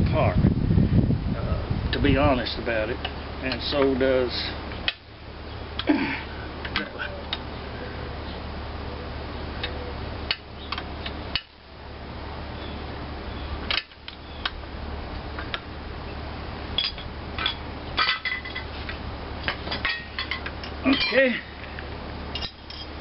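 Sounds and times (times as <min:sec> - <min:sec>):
metal tools clinking: 0:16.8 - 0:21.4, 0:22.3 - 0:23.0.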